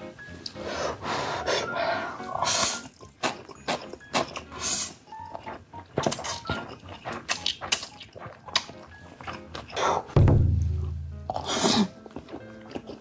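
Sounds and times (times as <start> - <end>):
noodles being slurped: 2.3 - 10.2
wet mouth clicks and smacks: 6.0 - 9.4.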